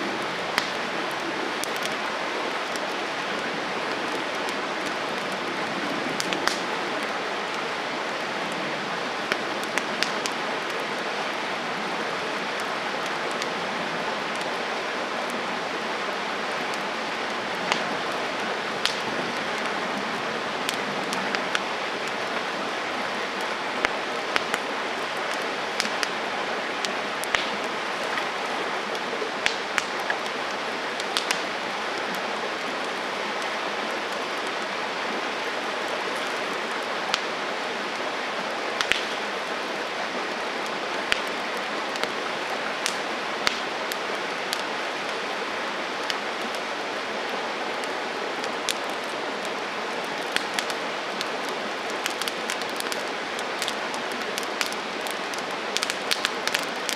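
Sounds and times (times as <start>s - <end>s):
campfire hiss and crackle: 0.0s - 56.9s
sharp pops of fire: 0.5s - 0.9s, 6.2s - 6.7s, 18.8s - 19.1s, 26.8s - 27.6s, 29.4s - 30.1s, 31.0s - 31.5s, 38.8s - 39.2s, 41.1s - 41.4s, 42.8s - 43.7s, 55.8s - 56.9s.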